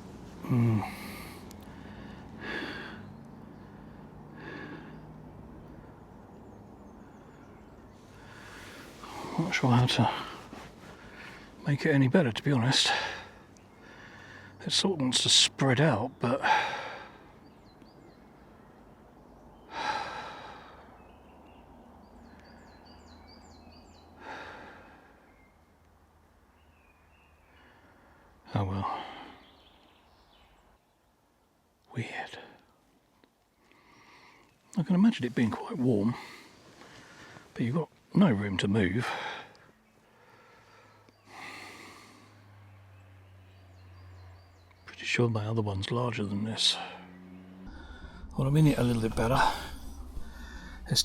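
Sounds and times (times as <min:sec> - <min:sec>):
man sighing heavily: 0:00.4 - 0:03.1, 0:03.8 - 0:05.1, 0:49.4 - 0:50.9
man breathing out heavily: 0:00.4 - 0:05.2, 0:13.0 - 0:14.6, 0:19.7 - 0:21.0, 0:24.2 - 0:25.2, 0:40.2 - 0:42.5, 0:47.7 - 0:48.4, 0:49.4 - 0:50.9
faint bird chirps: 0:17.2 - 0:32.7.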